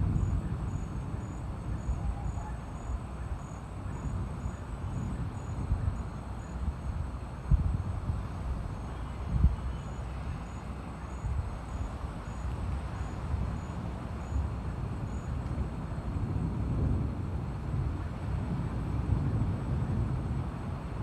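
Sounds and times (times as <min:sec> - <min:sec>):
faint insect chirping: 0:00.0 - 0:16.5
wind and sea rumbling: 0:00.0 - 0:21.0.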